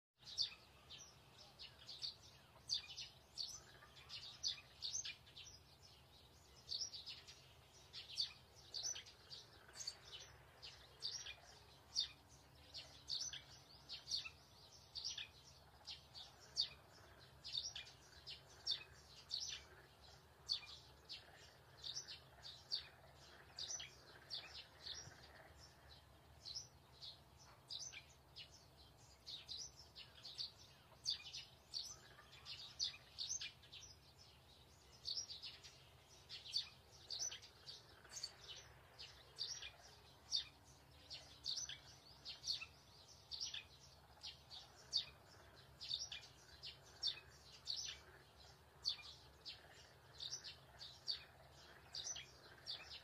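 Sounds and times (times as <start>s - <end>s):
birds chirping: 0.2s - 53.0s.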